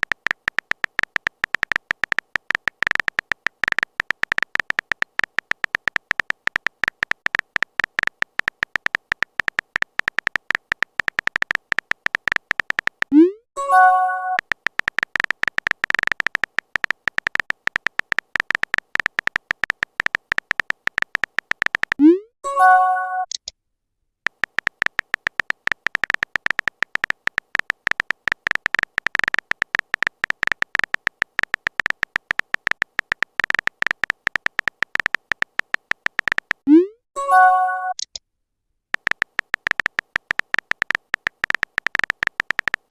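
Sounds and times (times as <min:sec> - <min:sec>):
keyboard typing clicks: 0:00.0 - 0:23.5, 0:24.3 - 0:38.2, 0:38.9 - 0:42.9
message-sent chime: 0:13.6 - 0:14.4, 0:22.5 - 0:23.3, 0:36.7 - 0:38.0.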